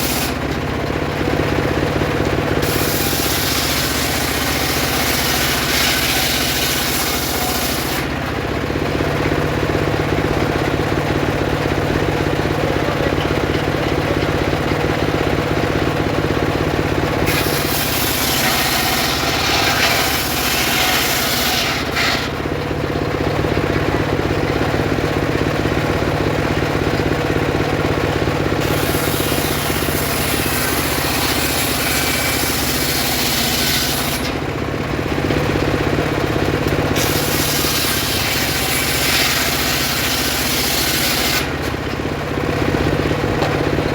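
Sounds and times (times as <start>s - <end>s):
saw motor humming: 0.0s - 1.3s, 2.3s - 8.5s, 15.6s - 22.8s, 28.4s - 43.9s.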